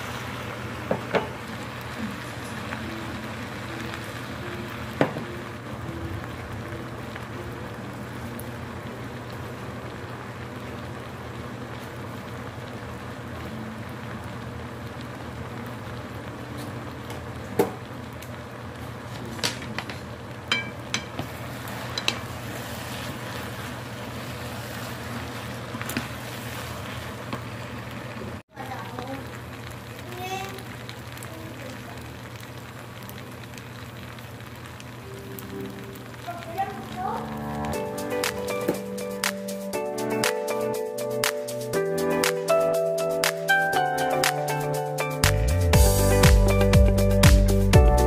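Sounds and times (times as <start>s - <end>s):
food sizzling in a frying pan: 0.0s - 48.0s
utensils clicking against pan: 19.4s - 22.3s.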